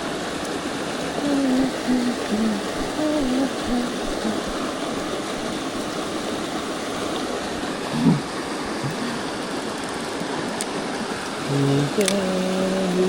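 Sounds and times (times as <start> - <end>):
stream water rushing: 0.0 - 13.0
man humming: 1.2 - 4.8, 11.5 - 13.0.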